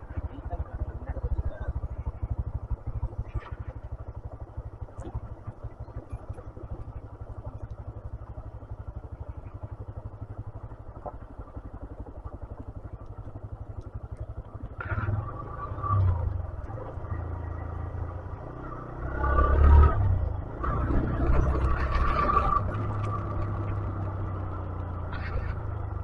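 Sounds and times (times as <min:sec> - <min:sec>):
motorcycle engine idling low: 0:00.0 - 0:19.0, 0:20.0 - 0:26.0.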